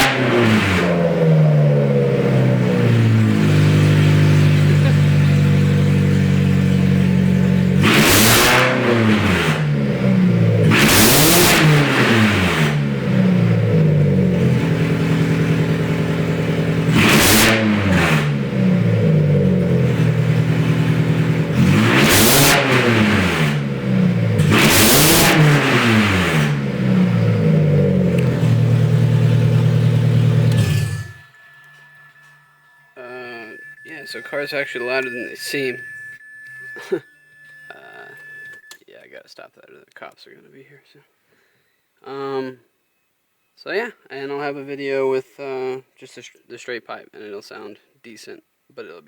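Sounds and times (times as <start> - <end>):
loud car engine idling and revving: 0.0 - 38.8.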